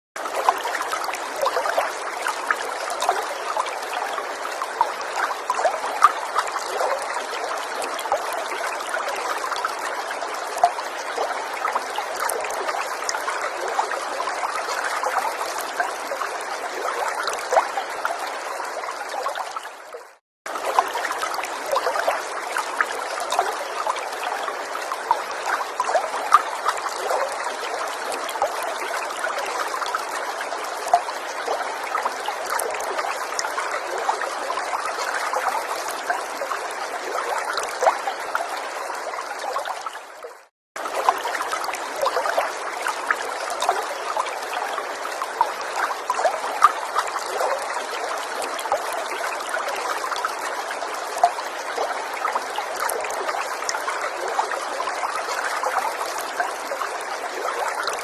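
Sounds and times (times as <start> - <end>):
stream trickling and babbling: 0.2 - 58.0.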